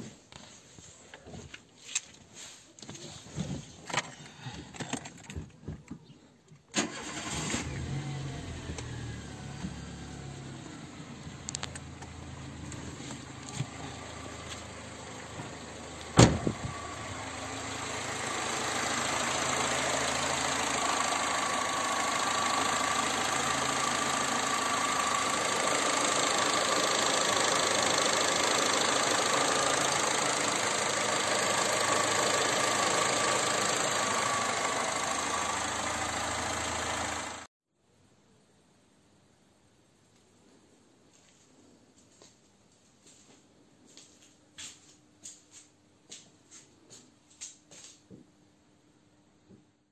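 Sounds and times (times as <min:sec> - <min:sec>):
car engine starting and idling: 0:06.7 - 0:37.5.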